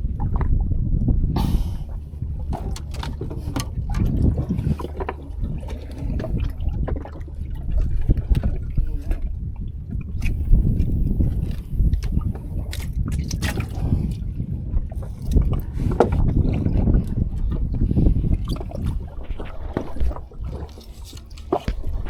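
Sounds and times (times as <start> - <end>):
water sloshing against boat hull: 0.0 - 22.0
small clicks and knocks: 2.5 - 3.8.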